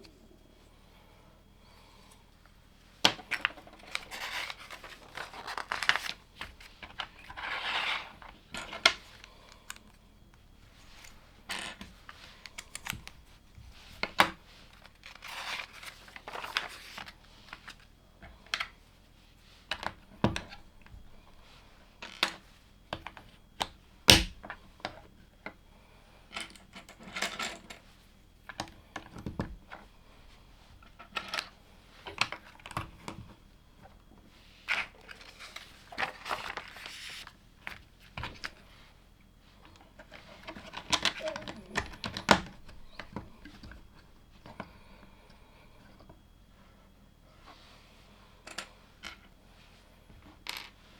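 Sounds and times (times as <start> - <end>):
rustling of loose pieces: 2.8 - 17.9.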